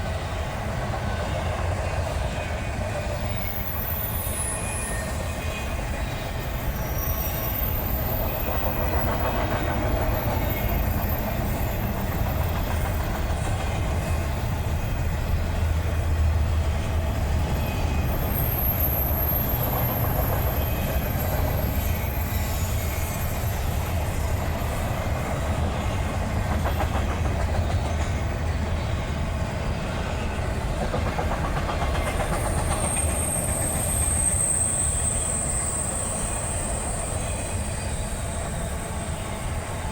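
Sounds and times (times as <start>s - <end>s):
train cars rumbling by: 0.0s - 39.9s
high wheel squeal: 3.2s - 9.1s, 17.4s - 26.4s, 31.6s - 39.9s
wheels clicking over rail joints: 24.2s - 28.8s, 30.6s - 34.2s.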